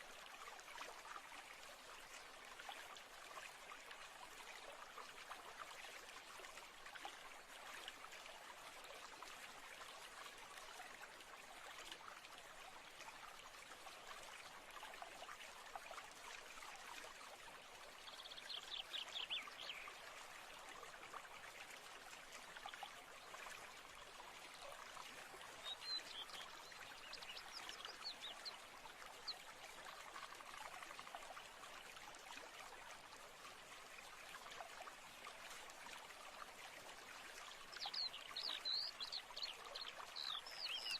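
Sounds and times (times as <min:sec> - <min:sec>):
stream trickling: 0:00.0 - 0:40.9
birdsong: 0:25.6 - 0:28.6, 0:37.8 - 0:40.9.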